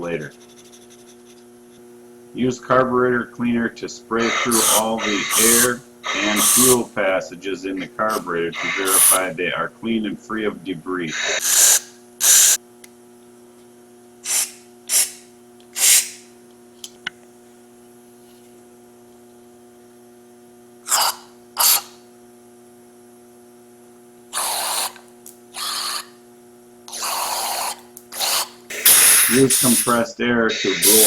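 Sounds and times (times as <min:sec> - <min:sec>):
aerosol spray hissing squirts: 0:04.3 - 0:06.7, 0:08.6 - 0:09.2, 0:11.4 - 0:12.6, 0:14.3 - 0:15.2, 0:15.8 - 0:16.2, 0:26.9 - 0:30.0.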